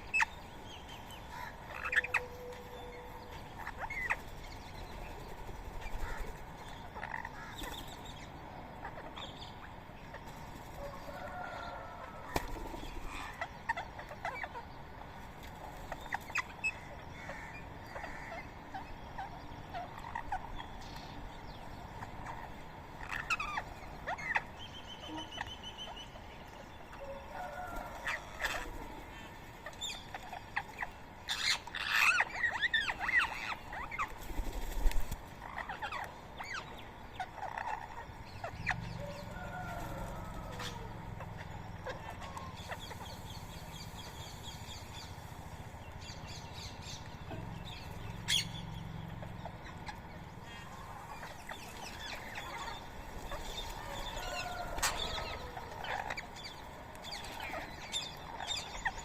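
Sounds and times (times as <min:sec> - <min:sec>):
birds chirping and squawking: 0:00.0 - 0:59.0
parakeets chattering loudly: 0:01.3 - 0:02.2, 0:03.5 - 0:08.0, 0:12.6 - 0:14.7, 0:15.8 - 0:20.7, 0:22.0 - 0:24.5, 0:28.0 - 0:59.0.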